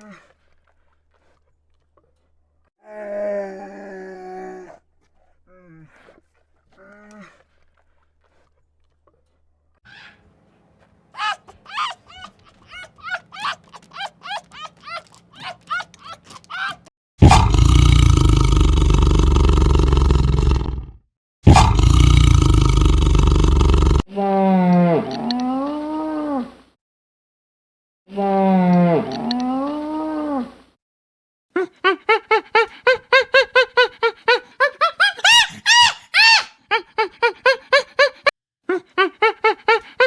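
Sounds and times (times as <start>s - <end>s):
long harsh animal calls: 35.1s - 38.3s.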